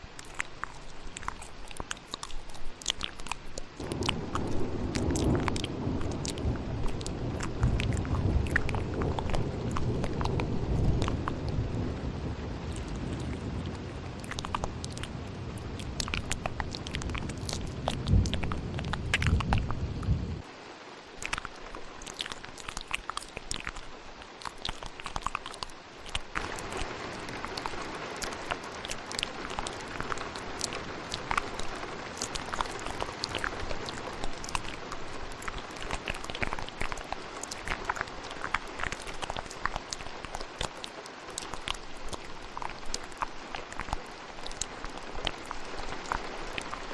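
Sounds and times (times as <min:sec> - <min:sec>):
wet mouth clicks and smacks: 0:00.0 - 0:11.6, 0:12.7 - 0:20.1, 0:21.2 - 0:46.9
rain: 0:00.0 - 0:46.9
low thunder rumble: 0:03.8 - 0:20.5.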